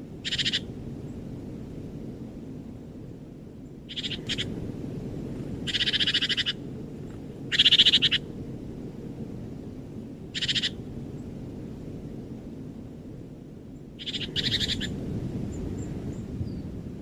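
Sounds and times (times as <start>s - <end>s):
low background rumble: 0.0s - 17.0s
animal calling in rapid trills: 0.2s - 0.7s, 3.9s - 4.5s, 5.7s - 6.6s, 7.5s - 8.2s, 10.4s - 10.8s, 14.0s - 14.9s.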